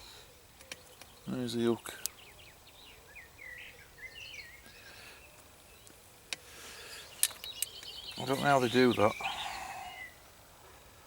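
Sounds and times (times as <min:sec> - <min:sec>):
outdoor background noise: 0:00.0 - 0:11.0
songbird warbling: 0:06.6 - 0:10.2.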